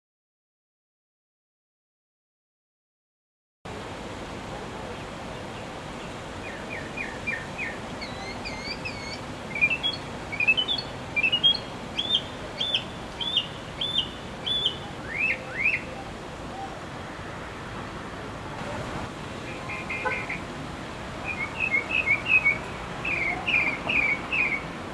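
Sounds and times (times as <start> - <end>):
steady background hiss: 3.7 - 24.9
songbird singing: 4.8 - 20.5, 21.1 - 24.9.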